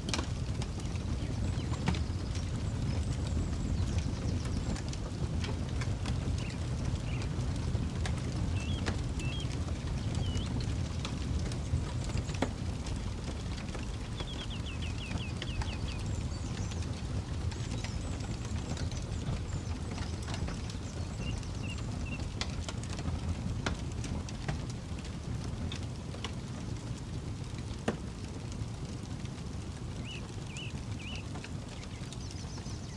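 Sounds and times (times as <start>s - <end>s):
campfire crackling and popping: 0.0s - 32.9s
bird calling: 8.6s - 9.5s, 30.0s - 32.9s.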